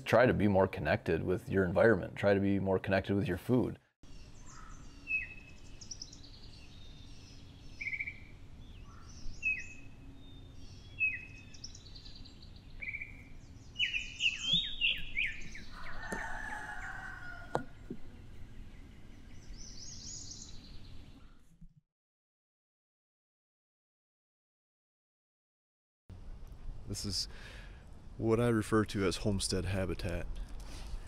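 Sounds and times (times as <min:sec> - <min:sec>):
longer lower bird call: 0:04.1 - 0:21.4
mixed bird calls: 0:04.1 - 0:21.5
bird falling chirp: 0:12.8 - 0:18.2.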